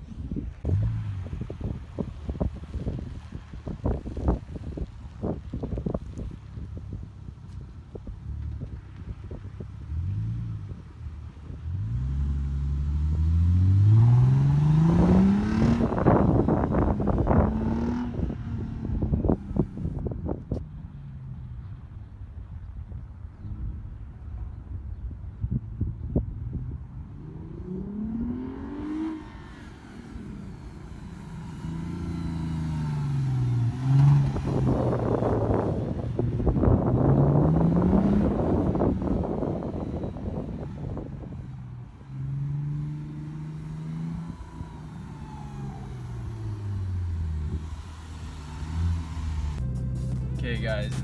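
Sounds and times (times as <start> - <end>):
car engine revving and accelerating: 0.6 - 6.2, 8.0 - 21.9, 26.2 - 51.0
car passing by with choppy rasp: 12.1 - 20.0, 26.6 - 51.0.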